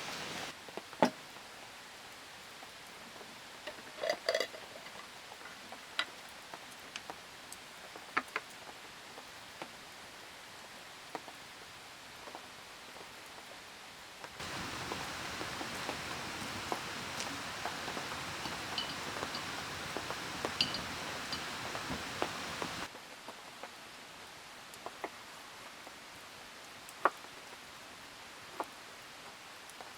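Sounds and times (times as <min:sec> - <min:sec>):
rain drips and taps: 0:00.0 - 0:01.4, 0:02.5 - 0:10.0, 0:14.2 - 0:22.9
ringing clinks: 0:14.4 - 0:22.9.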